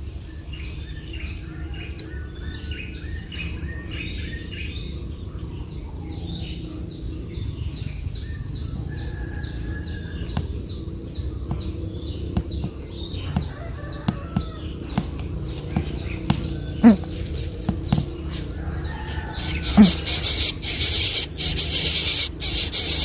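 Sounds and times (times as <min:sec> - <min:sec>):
nestling birds chirping: 0:01.1 - 0:23.0.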